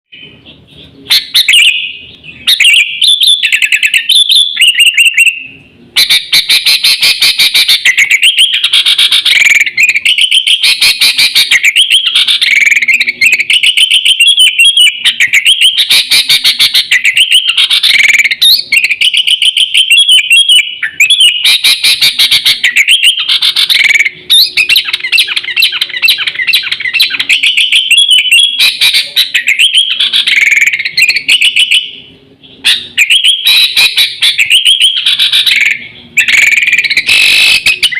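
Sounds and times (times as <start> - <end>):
bulbul song chattering: 0.1 - 37.9.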